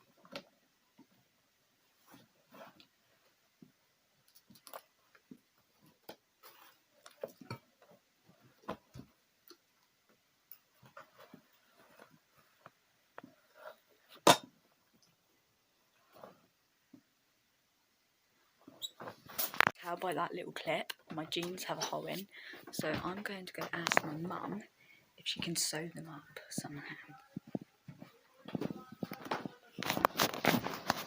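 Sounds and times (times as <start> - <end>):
small clicks taps and rustles: 3.6 - 13.4.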